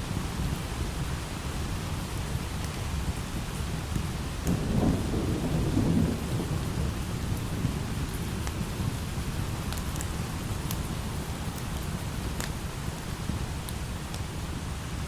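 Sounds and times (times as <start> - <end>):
light rain falling: 0.0 - 15.0
low thunder rumble: 4.4 - 11.3.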